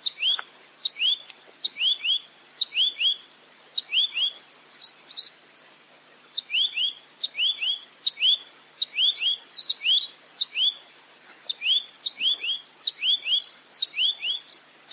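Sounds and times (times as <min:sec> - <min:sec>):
nuthatch whistled calls: 0:11.6 - 0:14.9.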